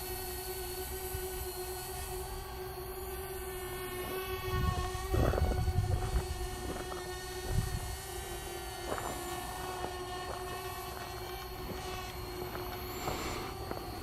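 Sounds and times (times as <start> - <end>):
drone rotors whining: 0.0 - 14.0
wind rumble on microphone: 4.3 - 9.9.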